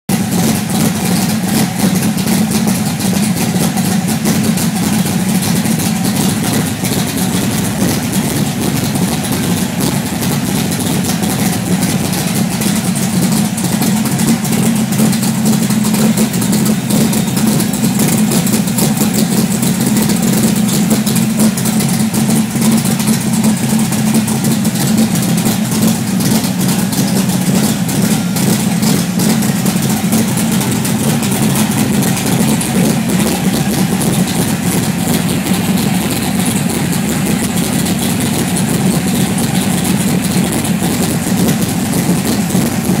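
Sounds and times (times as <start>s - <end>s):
car engine idling: 0.0s - 43.0s.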